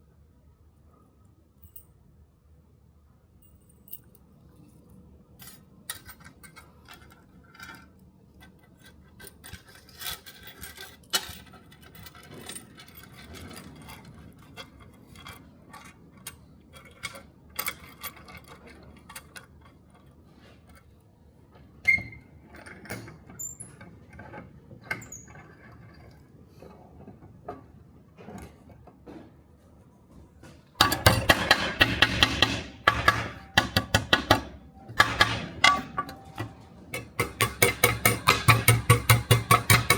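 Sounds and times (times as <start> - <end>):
metal-on-metal strikes: 30.8 - 39.9.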